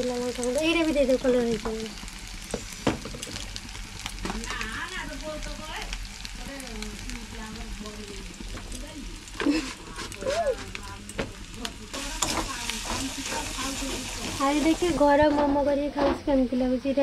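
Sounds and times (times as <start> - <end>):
meat mixture sizzling in a pan: 0.0 - 15.3
steel spatula scraping a pan: 12.0 - 14.5.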